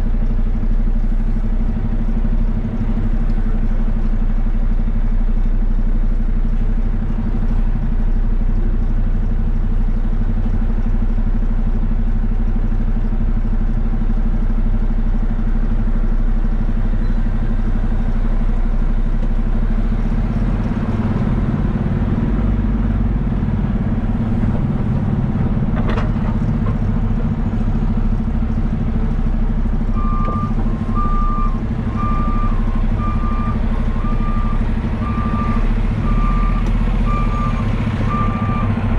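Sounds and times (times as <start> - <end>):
diesel engine running: 0.0 - 38.9
reversing alarm beeping: 30.0 - 38.8.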